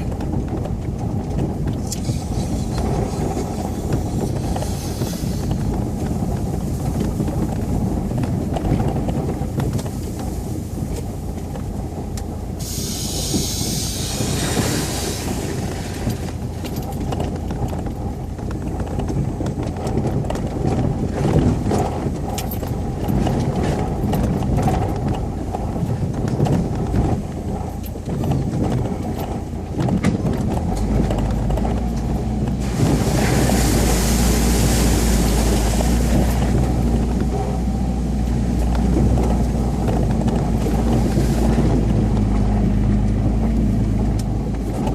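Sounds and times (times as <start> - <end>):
vehicle engine rumbling: 0.0 - 44.9
hissing noise bursts: 12.6 - 15.8
knocks and rattles: 14.2 - 37.7.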